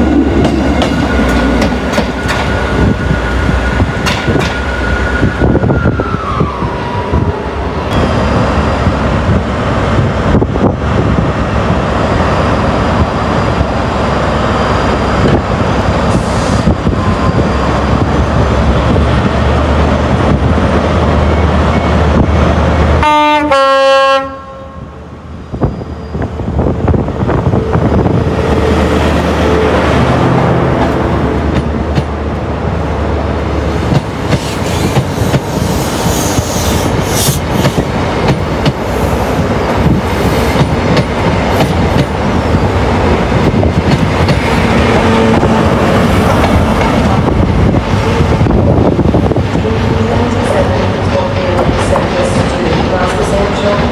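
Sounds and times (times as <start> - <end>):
train rumbling on tracks: 0.0 - 53.9
train horn blast: 23.0 - 25.0.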